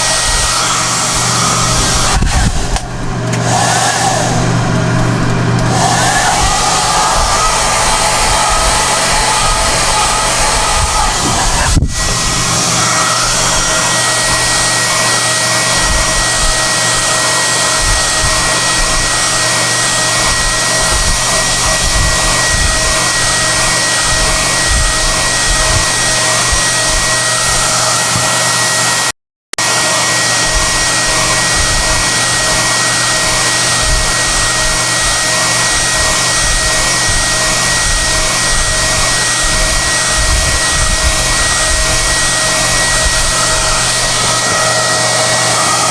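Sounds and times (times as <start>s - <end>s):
hair dryer blowing: 0.0s - 45.9s.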